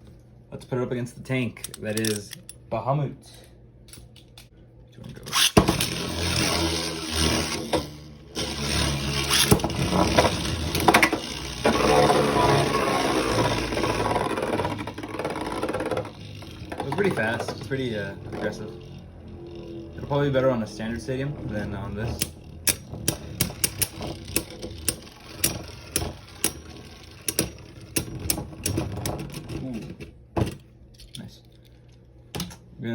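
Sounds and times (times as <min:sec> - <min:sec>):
spinning tops whirring and scraping: 0:05.2 - 0:29.7.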